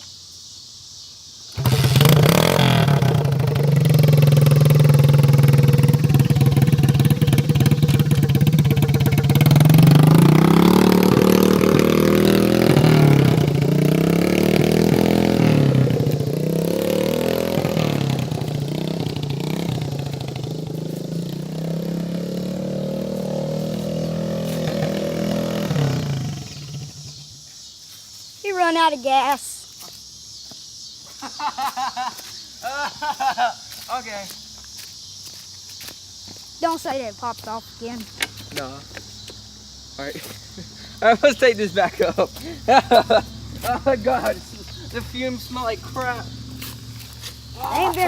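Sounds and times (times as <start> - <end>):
dirt bike engine revving: 1.5 - 27.4, 40.5 - 48.0.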